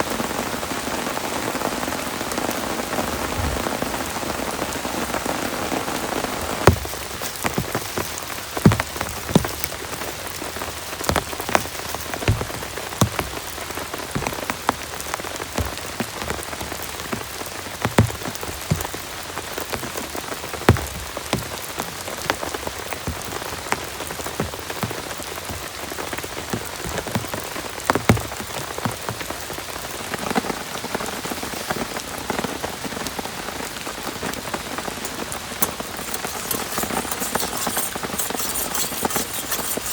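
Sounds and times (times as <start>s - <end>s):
drops striking a surface: 6.7s - 10.0s, 11.0s - 14.8s, 17.8s - 19.0s, 20.7s - 21.6s, 35.0s - 39.9s.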